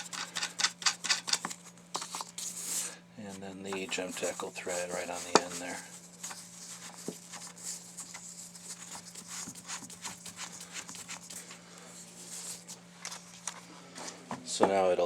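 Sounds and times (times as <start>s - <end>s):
metal clicks and scrapes: 0.0s - 1.6s
steady low hum: 0.0s - 15.0s.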